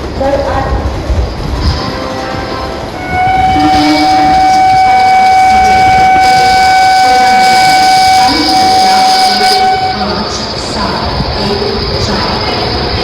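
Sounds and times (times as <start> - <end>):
train air horn: 1.7 - 10.3.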